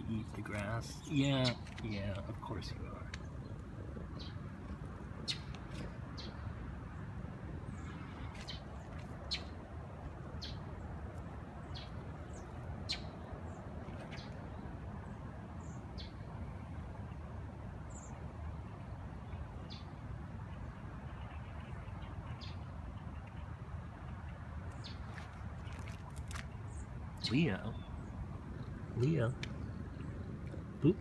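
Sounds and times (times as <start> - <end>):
small birds chirping: 0.0 - 16.7, 24.2 - 31.0.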